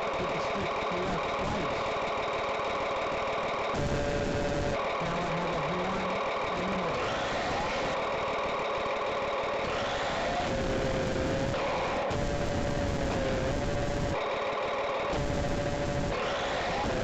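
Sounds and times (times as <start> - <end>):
simulated boat engine from speaker: 0.0 - 2.0, 4.8 - 7.9.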